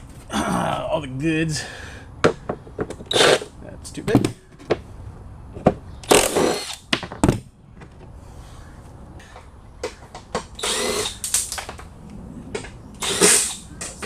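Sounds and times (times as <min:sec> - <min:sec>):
cordless impact wrench: 0:03.1 - 0:03.5, 0:06.0 - 0:06.9, 0:10.5 - 0:11.5, 0:13.0 - 0:14.0.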